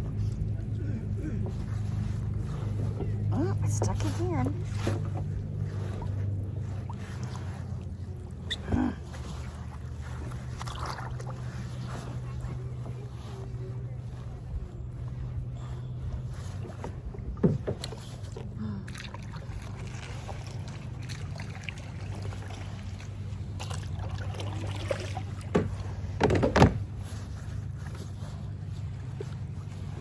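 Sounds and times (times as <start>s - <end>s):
low hum: 0.0s - 30.0s
knocks and splashes: 1.4s - 12.3s, 15.7s - 28.4s.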